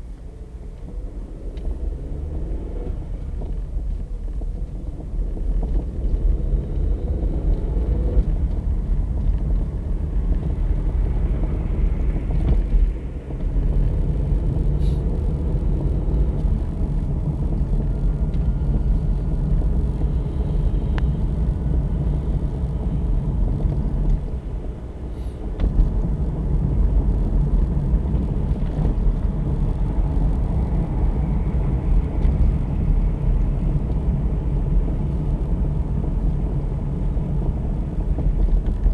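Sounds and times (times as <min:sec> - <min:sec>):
road and tyre rumble: 0:00.0 - 0:38.9.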